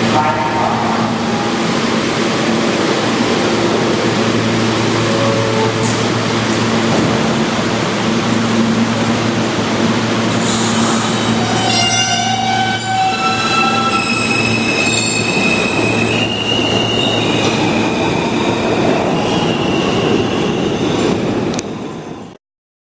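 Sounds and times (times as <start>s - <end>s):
subway train rumble: 0.0s - 22.4s
train wheels squealing: 10.5s - 21.1s.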